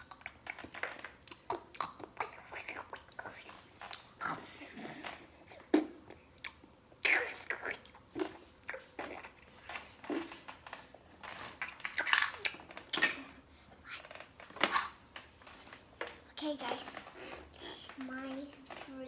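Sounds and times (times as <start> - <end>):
chewing and crunching food: 0.0 - 16.0
wet mouth sounds: 1.2 - 10.4.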